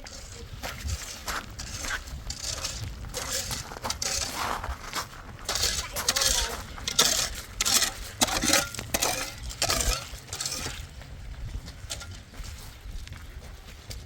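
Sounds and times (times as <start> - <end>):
metal kitchenware clinking and scraping: 5.5 - 10.9.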